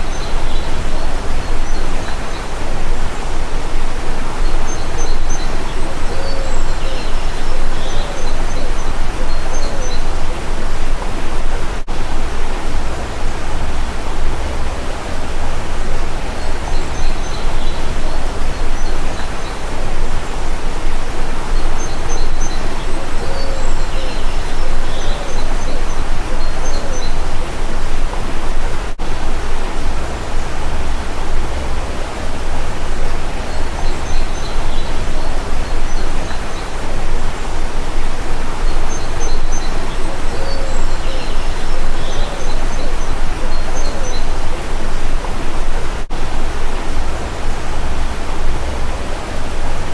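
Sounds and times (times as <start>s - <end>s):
birds chirping: 0.0s - 49.9s
stream water rushing: 0.0s - 49.9s.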